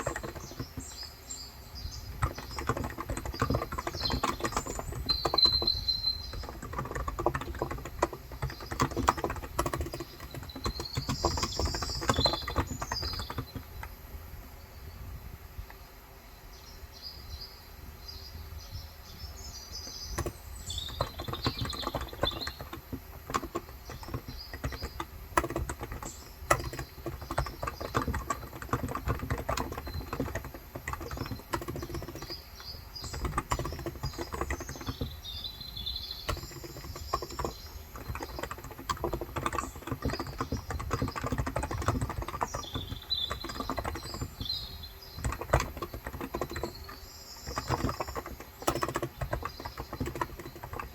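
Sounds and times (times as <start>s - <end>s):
keyboard key clacks: 0.0s - 1.1s, 2.0s - 14.0s, 19.9s - 50.9s
birds chirping: 0.0s - 50.9s.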